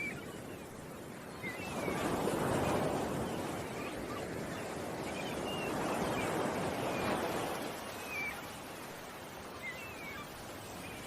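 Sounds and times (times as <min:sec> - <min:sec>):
ocean waves washing in: 0:00.0 - 0:11.0.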